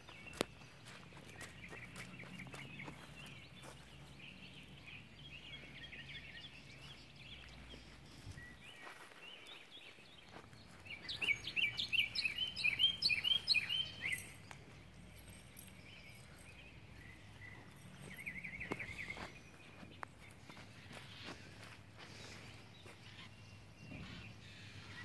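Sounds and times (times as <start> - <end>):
faint background noise: 0.0 - 25.0
songbird chirping: 0.0 - 25.0
bird trill: 10.7 - 25.0.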